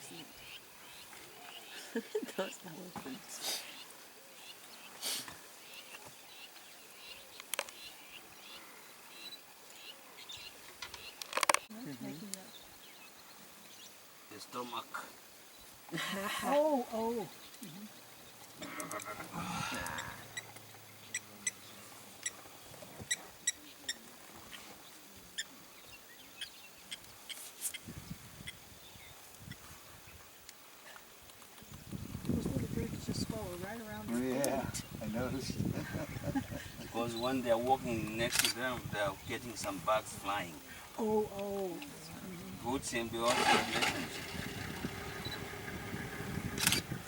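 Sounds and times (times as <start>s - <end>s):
small birds chirping: 0.0s - 15.9s, 16.5s - 47.0s
sharp clicks: 46.6s - 46.9s.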